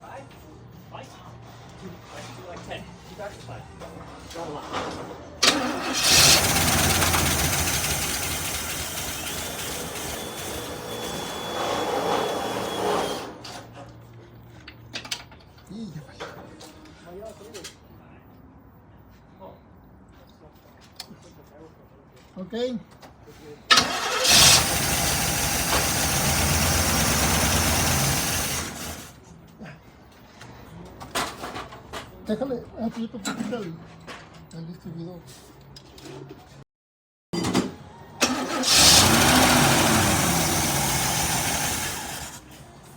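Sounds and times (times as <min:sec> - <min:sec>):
car engine running: 0:05.4 - 0:11.1, 0:23.7 - 0:29.2, 0:38.2 - 0:42.6
faint high whistle: 0:10.2 - 0:13.0.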